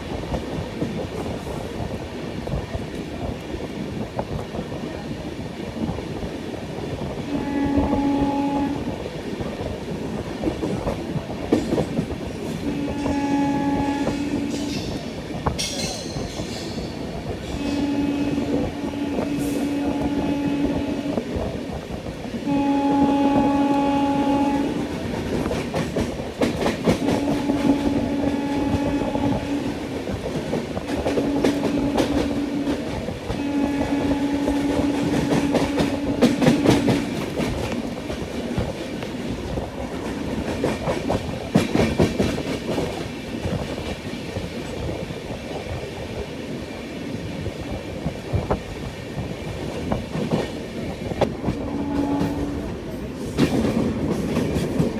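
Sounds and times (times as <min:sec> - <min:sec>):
train horn blasts: 0:07.2 - 0:09.1, 0:12.4 - 0:15.2, 0:17.3 - 0:21.7, 0:22.4 - 0:25.6, 0:26.6 - 0:38.1, 0:51.2 - 0:53.0
train wheels clacking over rail joints: 0:09.4 - 0:22.2, 0:23.3 - 0:45.9, 0:47.5 - 0:54.9.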